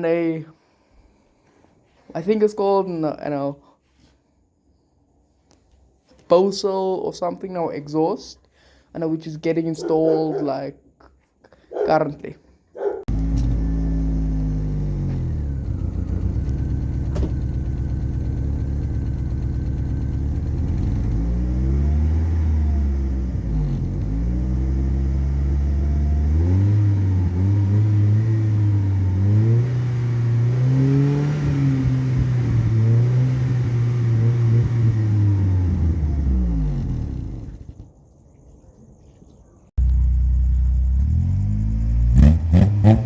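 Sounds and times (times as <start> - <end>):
car engine idling and revving: 13.0 - 37.9, 39.8 - 43.0.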